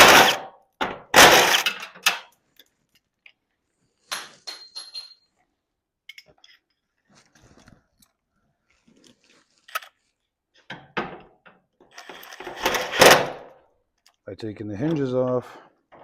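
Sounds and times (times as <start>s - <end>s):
hand tools clinking on metal: 4.4s - 5.3s.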